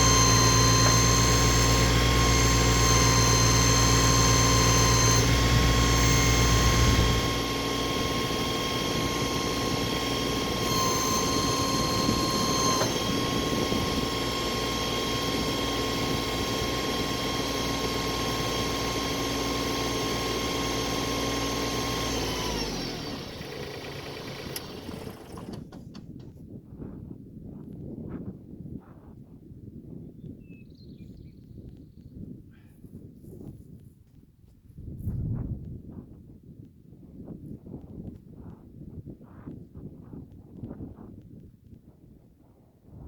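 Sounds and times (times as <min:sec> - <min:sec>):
tractor engine running with whine: 0:00.0 - 0:27.0.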